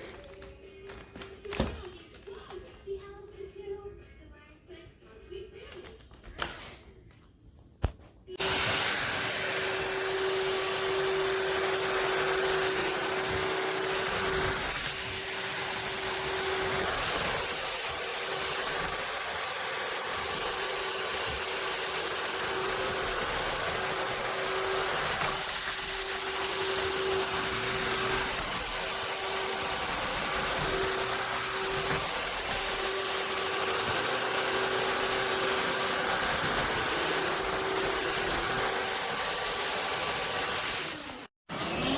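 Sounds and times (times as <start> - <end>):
motor hum: 8.4 - 41.9
vacuum mop suction hiss: 8.4 - 41.9.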